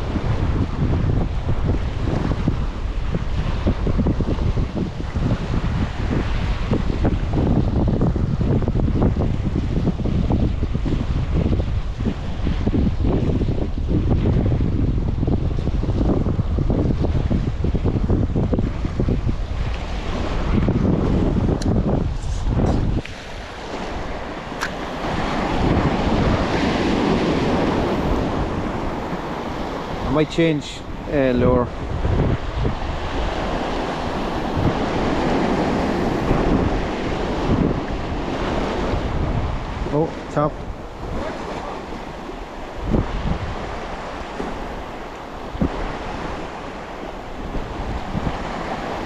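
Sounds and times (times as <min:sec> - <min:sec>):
surf washing against rocks: 0:00.0 - 0:49.0
wind buffeting microphone: 0:00.0 - 0:49.0.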